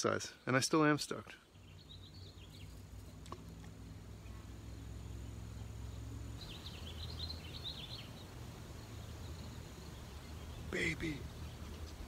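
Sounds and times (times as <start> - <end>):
songbird chirping: 0.0 - 12.0
low outdoor rumble: 1.5 - 12.0.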